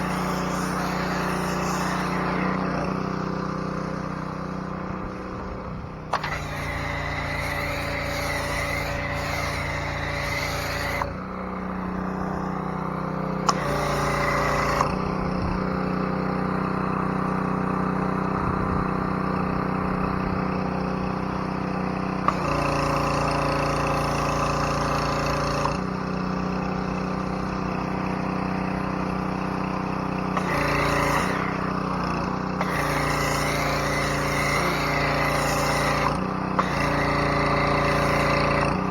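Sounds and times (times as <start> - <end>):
pressure washer engine running: 0.0 - 38.9.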